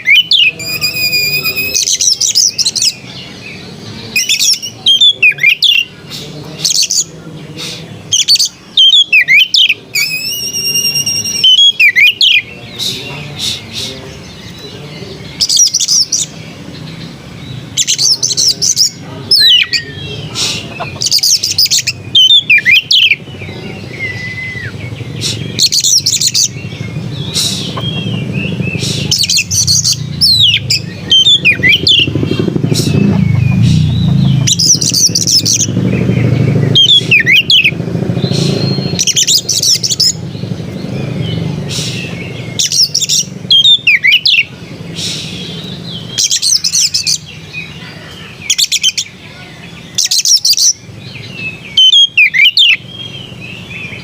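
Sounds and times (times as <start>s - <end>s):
bird singing: 0.0s - 54.0s
low rumble: 26.5s - 37.1s.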